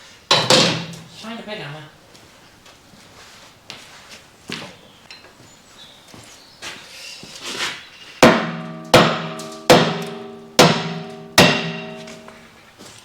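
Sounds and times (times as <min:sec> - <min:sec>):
hammer striking steel: 0:08.2 - 0:12.5.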